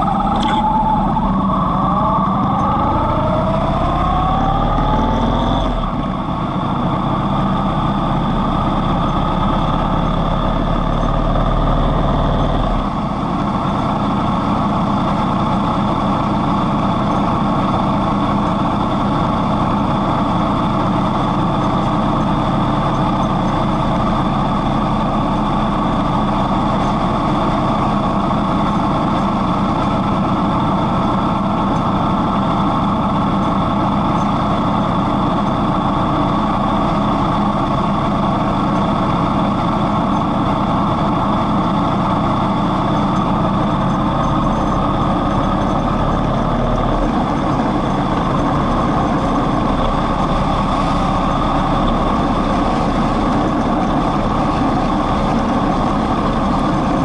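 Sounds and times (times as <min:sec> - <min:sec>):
motorcycle engine accelerating: 0:00.0 - 0:17.5.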